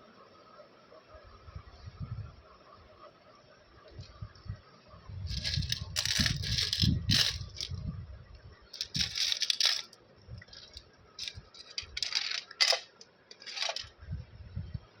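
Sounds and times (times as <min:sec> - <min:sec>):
candy packaging rustling: 0:05.3 - 0:07.8, 0:08.8 - 0:13.9.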